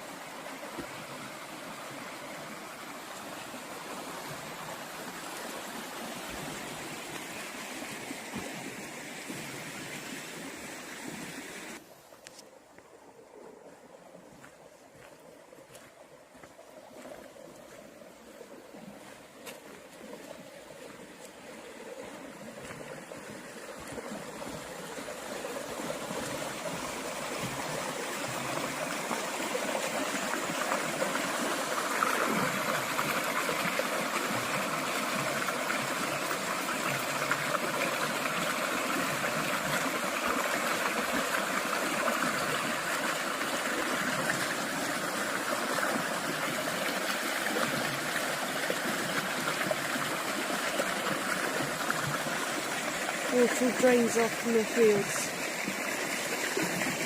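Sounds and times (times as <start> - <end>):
water rushing through a gap: 17.0 - 57.0.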